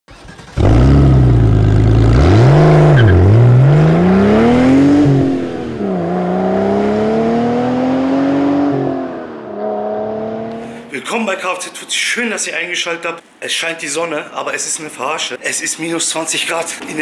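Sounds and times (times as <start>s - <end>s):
car engine revving: 0.1s - 10.9s.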